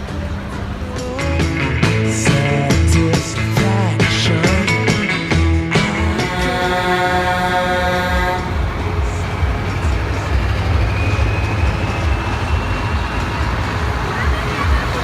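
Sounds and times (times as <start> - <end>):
heavy truck engines rumbling: 0.0 - 15.0
many-toned horn blast: 5.7 - 9.2.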